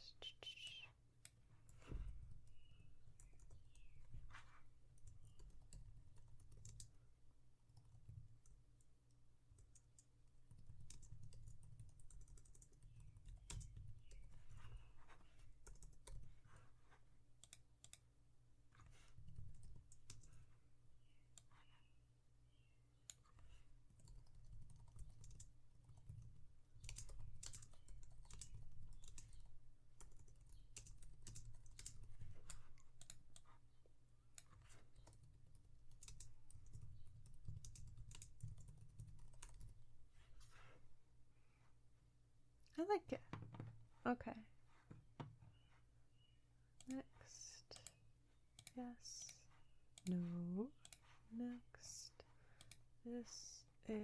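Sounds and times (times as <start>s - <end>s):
typing on computer keyboard: 2.4s - 7.0s, 9.5s - 16.4s, 18.9s - 20.5s, 23.1s - 33.6s, 34.3s - 39.9s.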